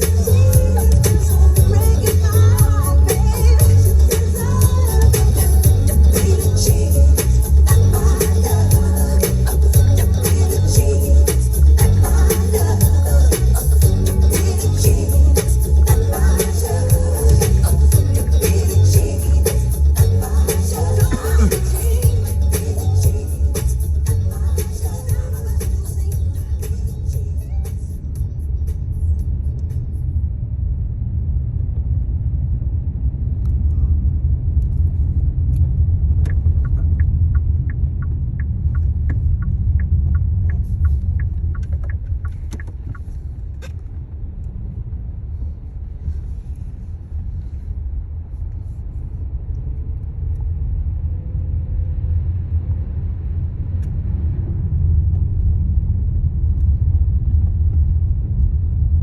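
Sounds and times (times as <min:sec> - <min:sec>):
car interior rumble: 0:00.0 - 0:59.0
regular ticking: 0:36.2 - 0:43.7.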